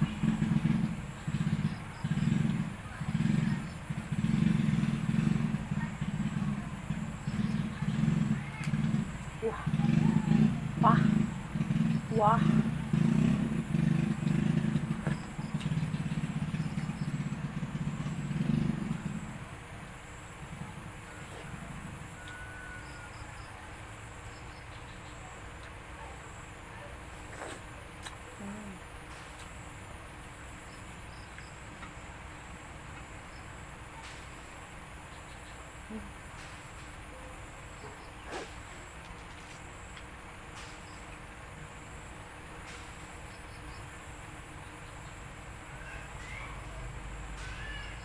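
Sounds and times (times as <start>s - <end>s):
small engine running: 0.0s - 24.7s, 45.5s - 48.0s.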